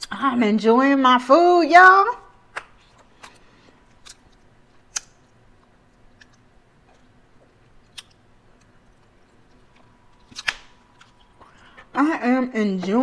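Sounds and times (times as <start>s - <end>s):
quiet chewing: 2.6s - 12.0s.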